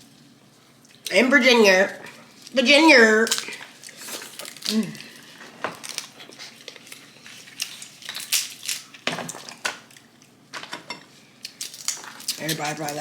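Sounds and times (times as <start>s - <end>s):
crab shells cracking: 3.2s - 10.1s, 11.4s - 13.0s.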